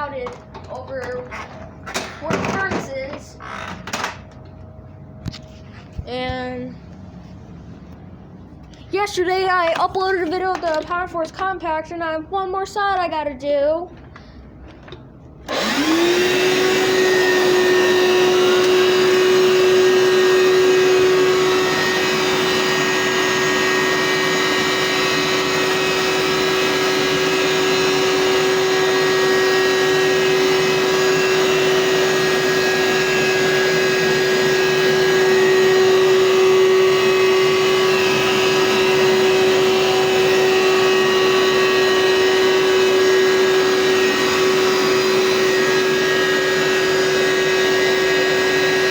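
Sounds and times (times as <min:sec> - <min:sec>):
carpet cleaner motor whine: 0:15.4 - 0:48.9.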